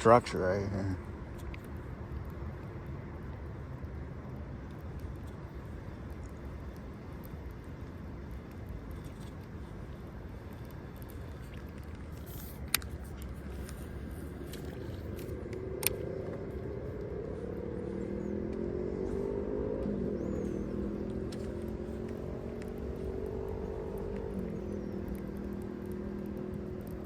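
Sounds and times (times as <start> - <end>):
sharp clicks: 10.6 - 16.5.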